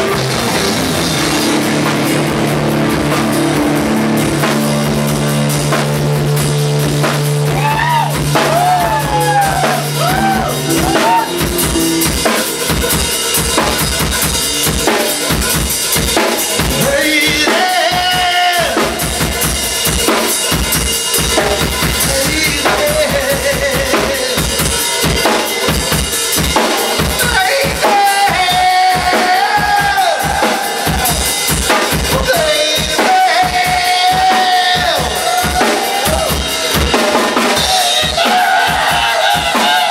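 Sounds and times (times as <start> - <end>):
lead guitar bent notes: 0.0 - 16.8
drum kit beating rhythm: 0.0 - 39.9
rock band playing live: 0.0 - 39.9.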